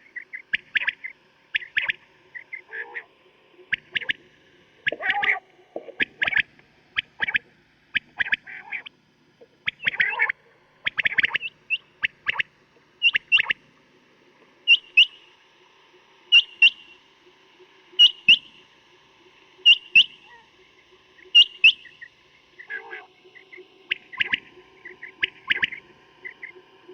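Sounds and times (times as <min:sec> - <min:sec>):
quail calling: 0:00.2 - 0:03.1, 0:03.7 - 0:04.2, 0:04.8 - 0:08.9, 0:09.6 - 0:13.6, 0:14.7 - 0:15.2, 0:16.3 - 0:17.0, 0:18.0 - 0:18.5, 0:19.6 - 0:20.5, 0:21.3 - 0:26.6.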